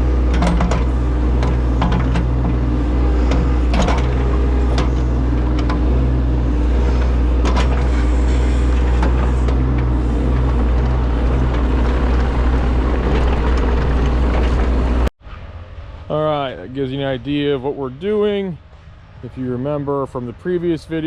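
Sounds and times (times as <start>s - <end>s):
metal clanks and knocks: 0.0s - 15.1s
diesel engine running: 0.0s - 21.0s.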